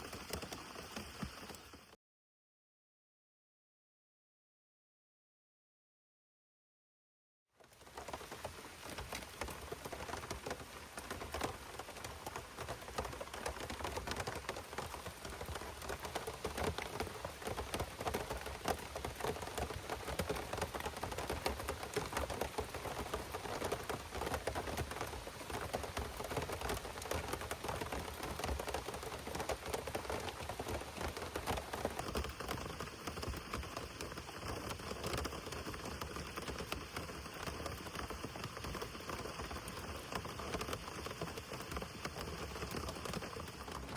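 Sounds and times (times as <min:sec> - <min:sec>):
heavy rain: 0:07.8 - 0:36.8.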